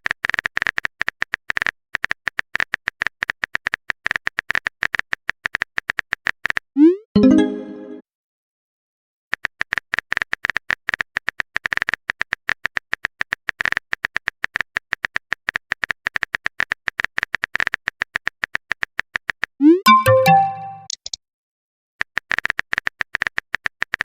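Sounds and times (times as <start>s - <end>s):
brief electronic tones: 19.6s - 20.9s.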